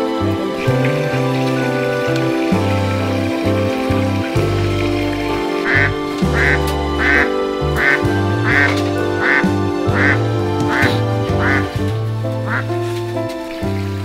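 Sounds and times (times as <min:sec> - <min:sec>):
background music with bass: 0:00.0 - 0:14.0
quack-like calls: 0:05.6 - 0:11.8, 0:12.4 - 0:12.7.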